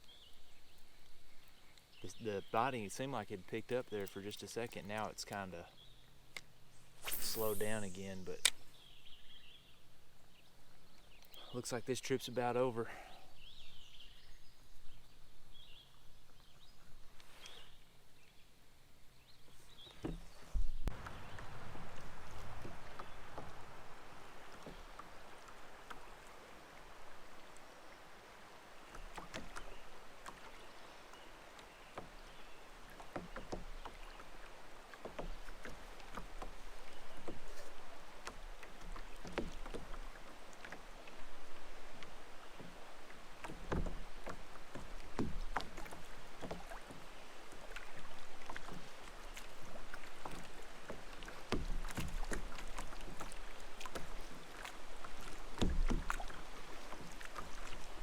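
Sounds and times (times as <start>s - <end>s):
paddle splashing in water: 19.5s - 58.0s.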